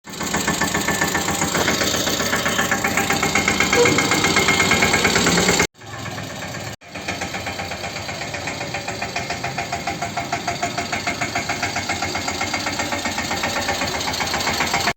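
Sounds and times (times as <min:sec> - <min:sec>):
tractor diesel engine chugging: 0:00.0 - 0:14.9.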